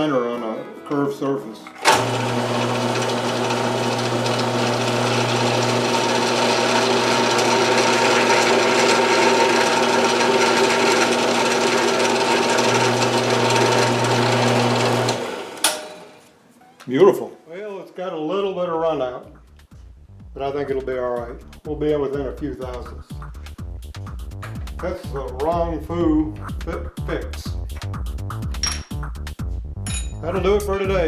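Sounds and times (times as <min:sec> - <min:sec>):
mill-drill motor humming: 0:01.8 - 0:16.2.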